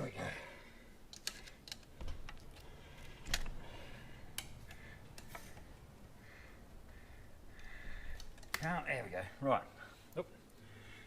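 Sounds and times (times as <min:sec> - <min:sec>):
metal clicks: 0:01.1 - 0:03.6.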